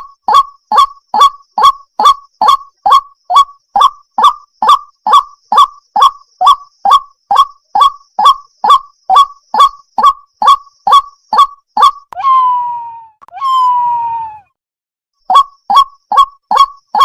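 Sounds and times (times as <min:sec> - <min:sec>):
waterhen croaking calls: 0:00.0 - 0:14.5, 0:15.3 - 0:17.0.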